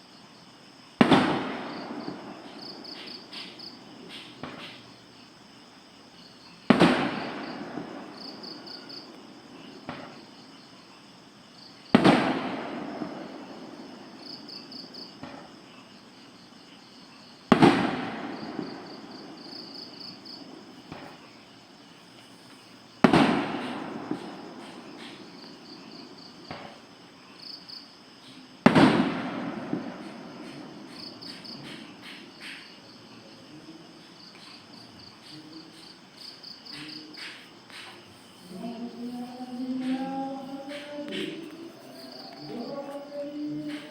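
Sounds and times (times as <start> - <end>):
crickets chirping: 0.0 - 43.9
fireworks bangs with rumble: 1.0 - 4.8, 6.7 - 10.3, 11.9 - 15.6, 17.5 - 21.2, 23.0 - 26.8, 28.6 - 32.7.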